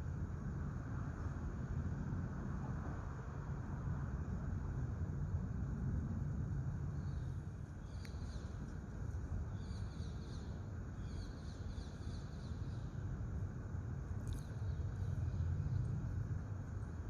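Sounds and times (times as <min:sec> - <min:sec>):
low background rumble: 0:00.0 - 0:17.0
bird chirping: 0:09.5 - 0:12.9.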